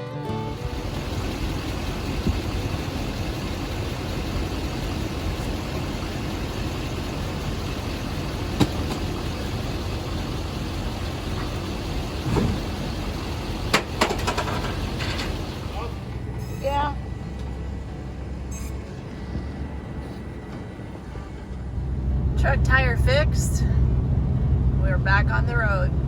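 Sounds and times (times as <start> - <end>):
vehicle engine low rumble: 0.3 - 26.0
sharp clicks and knocks: 8.6 - 9.2, 13.7 - 15.4.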